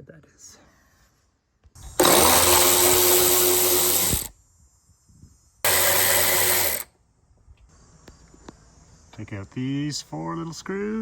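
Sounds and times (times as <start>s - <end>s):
power tool whining: 1.8s - 4.3s, 5.7s - 6.9s.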